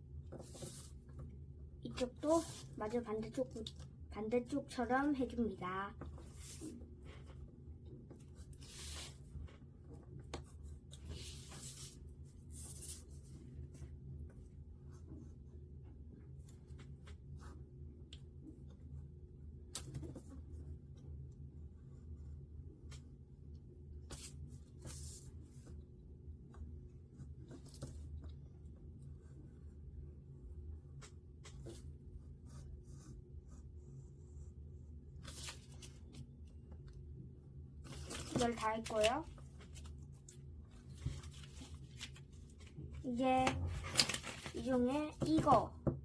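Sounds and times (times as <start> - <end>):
paper scratching and rustling: 8.1 - 13.9, 35.1 - 36.3, 37.8 - 45.6
paper scraping: 8.4 - 9.4.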